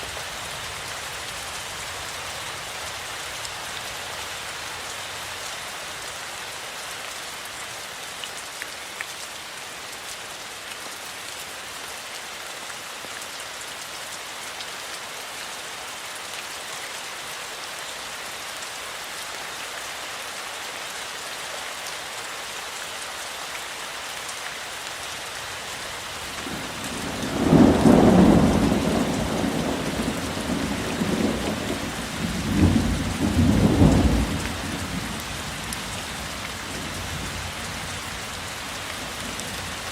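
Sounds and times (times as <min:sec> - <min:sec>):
steady rainfall: 0:00.0 - 0:39.9
thunder rumbling: 0:26.5 - 0:35.0.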